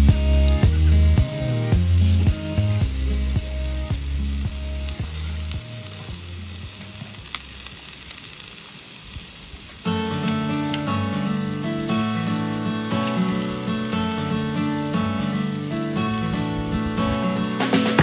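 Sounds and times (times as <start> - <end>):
background music: 0.0 - 6.1, 10.0 - 18.0
noodles sizzling in a frying pan: 0.0 - 18.0.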